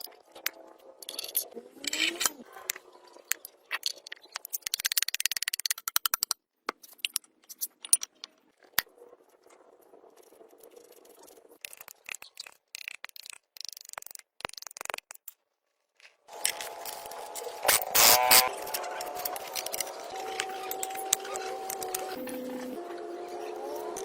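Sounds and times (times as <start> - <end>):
small hard objects rattling: 1.0 - 2.4, 16.3 - 22.2.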